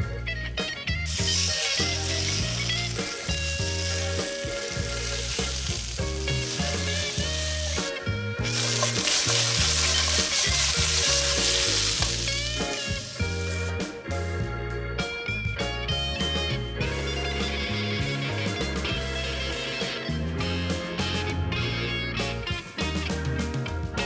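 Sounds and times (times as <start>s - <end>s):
soft guitar music: 0.0s - 24.0s
potato wedges sizzling in a pan: 1.1s - 13.7s
spatula turning food: 1.1s - 13.7s.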